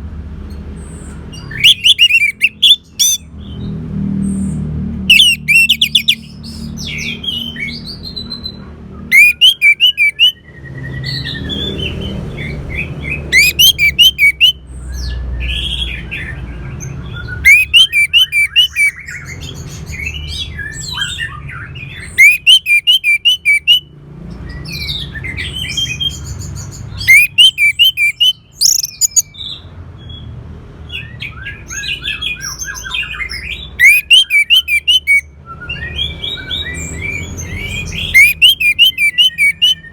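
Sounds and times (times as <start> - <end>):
softer chirps and whistled glides: 1.5 - 3.2, 5.1 - 6.3, 27.0 - 29.3, 33.8 - 35.2, 38.1 - 39.9.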